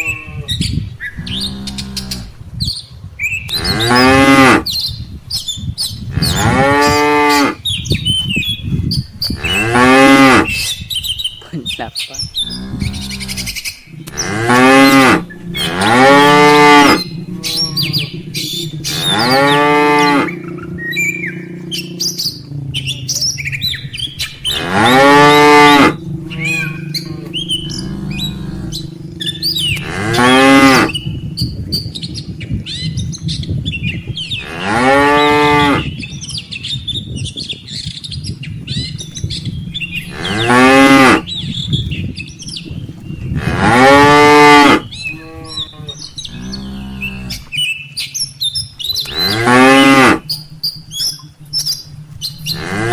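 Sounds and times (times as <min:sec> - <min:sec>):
cattle mooing: 0:00.0 - 0:00.6, 0:01.2 - 0:02.4, 0:03.6 - 0:04.7, 0:06.2 - 0:07.6, 0:09.3 - 0:10.6, 0:12.4 - 0:32.6, 0:34.3 - 0:36.0, 0:39.4 - 0:47.5, 0:49.0 - 0:50.5, 0:52.4 - 0:52.9.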